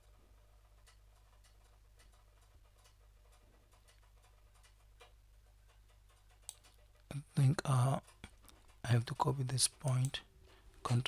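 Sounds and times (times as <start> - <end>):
low steady hum: 0.0 - 11.0
computer mouse clicks: 0.9 - 6.8.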